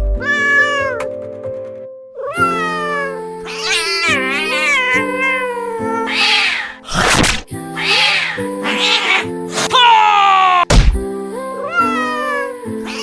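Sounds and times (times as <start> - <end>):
background music: 0.0 - 13.0
cartoon cat meowing: 0.2 - 1.0, 2.2 - 6.8, 7.8 - 10.7, 11.6 - 13.0.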